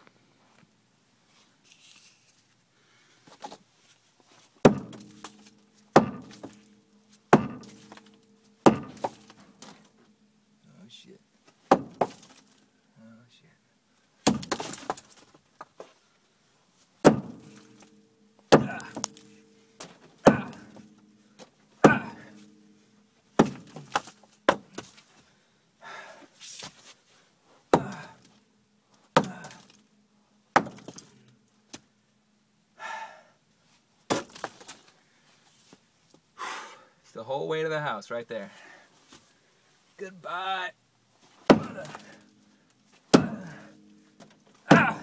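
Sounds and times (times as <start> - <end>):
heavy hammer blows ringing: 4.7 - 10.6, 17.0 - 24.8, 41.5 - 45.0.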